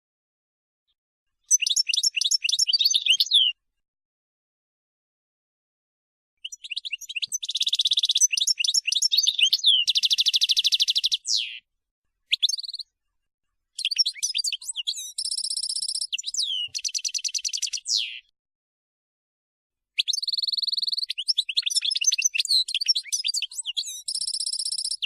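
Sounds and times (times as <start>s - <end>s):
finch twittering song: 1.4s - 3.6s, 6.4s - 11.6s, 12.3s - 12.9s, 13.8s - 18.3s, 20.0s - 25.0s
bird call: 6.4s - 11.6s, 13.8s - 18.3s.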